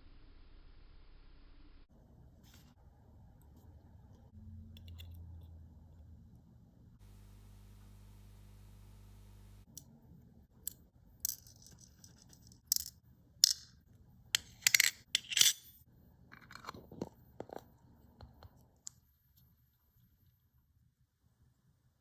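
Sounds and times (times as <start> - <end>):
metal watch parts clicking: 4.7 - 5.5, 10.6 - 13.8, 14.4 - 16.7
tools scraping: 14.4 - 17.6.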